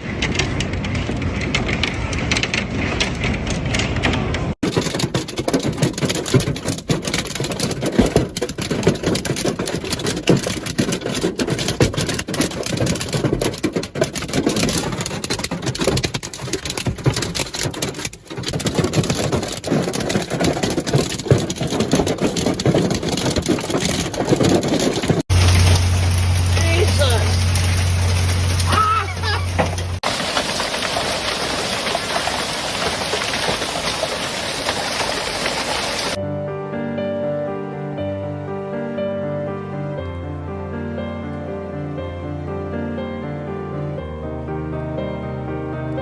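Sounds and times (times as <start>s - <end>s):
hail and heavy rain pelting: 0.0s - 36.2s.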